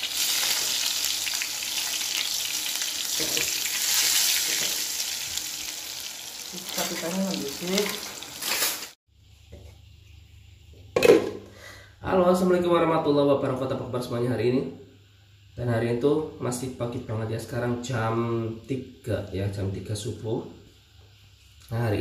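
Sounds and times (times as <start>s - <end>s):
chicken sizzling in hot oil: 0.0s - 9.0s
person speaking: 3.2s - 3.6s, 6.5s - 8.1s.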